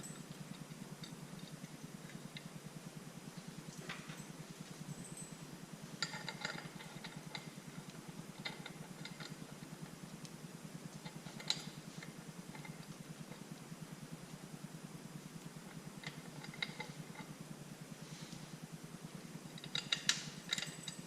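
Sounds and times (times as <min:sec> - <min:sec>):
low pulsing hum: 0:00.0 - 0:21.0
metal parts clinking: 0:19.6 - 0:21.0.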